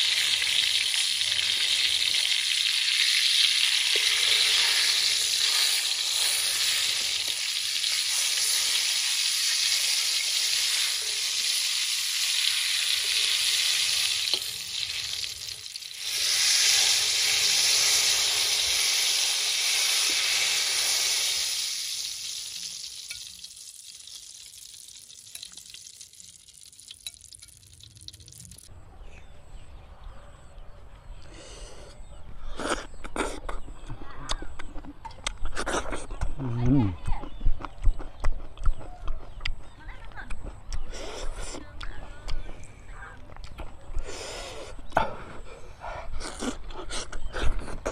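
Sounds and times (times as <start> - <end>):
food sizzling in hot oil: 0.0 - 28.7.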